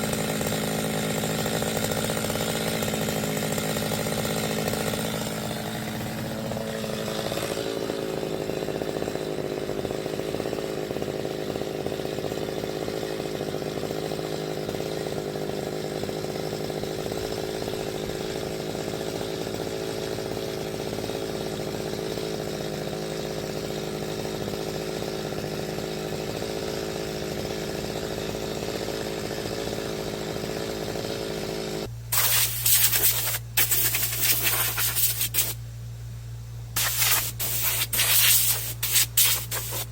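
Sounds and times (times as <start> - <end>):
loud broken hissing: 32.1 - 35.6, 36.8 - 39.9
power tool motor drone: 32.2 - 35.6, 36.8 - 39.9.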